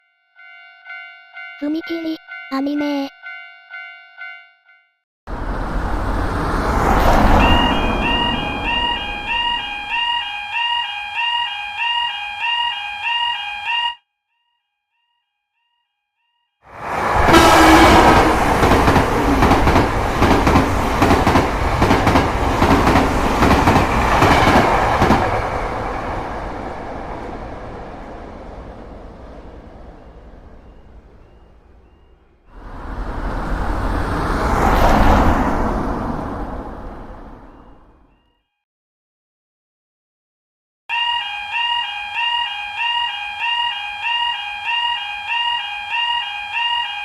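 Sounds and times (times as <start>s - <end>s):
train wheels clacking over rail joints: 17.3s - 25.6s.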